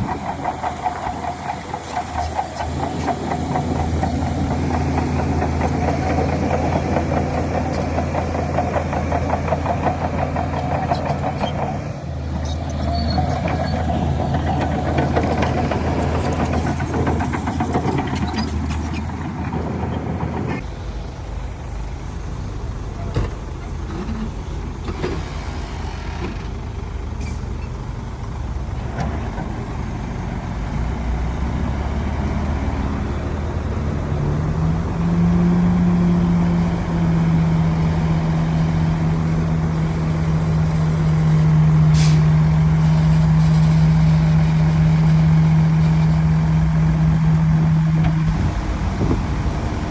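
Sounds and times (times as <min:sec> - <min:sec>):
heavy diesel engines running: 0:00.0 - 0:49.9.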